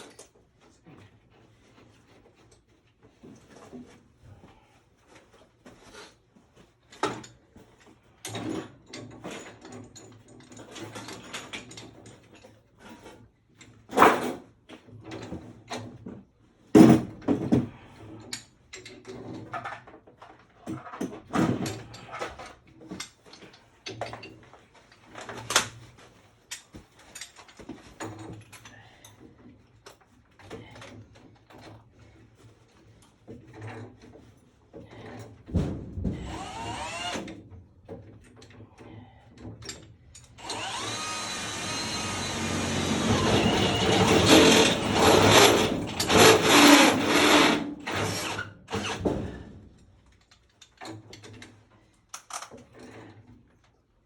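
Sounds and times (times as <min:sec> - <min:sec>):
knocks and clatter of work: 0:00.0 - 0:53.9
cordless power drill running: 0:36.3 - 0:37.3, 0:40.4 - 0:49.1.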